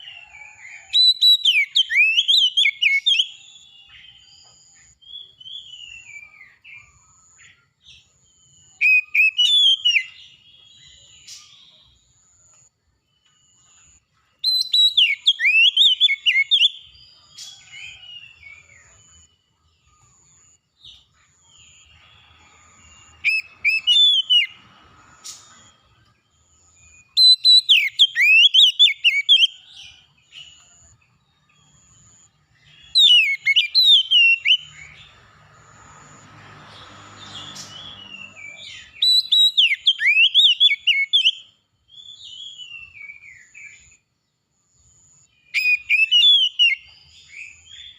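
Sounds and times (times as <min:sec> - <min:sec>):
bird singing whistled phrases: 0:00.0 - 0:04.3, 0:05.0 - 0:06.9, 0:08.8 - 0:11.7, 0:14.4 - 0:17.0, 0:23.0 - 0:24.6, 0:27.0 - 0:29.7, 0:32.7 - 0:35.0, 0:37.4 - 0:43.9, 0:45.4 - 0:47.9.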